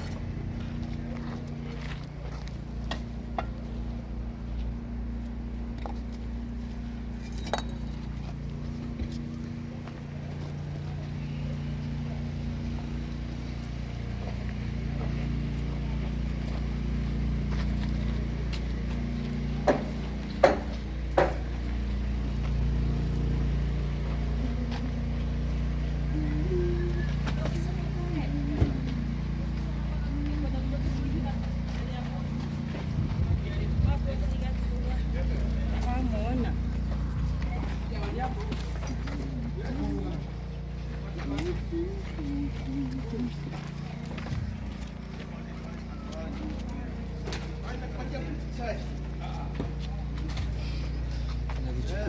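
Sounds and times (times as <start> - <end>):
machine engine humming: 0.0 - 52.0
sharp knocks and clinks: 7.2 - 8.2
sharp knocks: 19.7 - 21.4.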